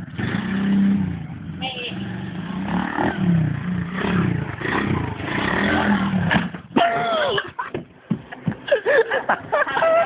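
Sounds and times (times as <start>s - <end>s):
pit bike engine revving: 0.0s - 6.8s.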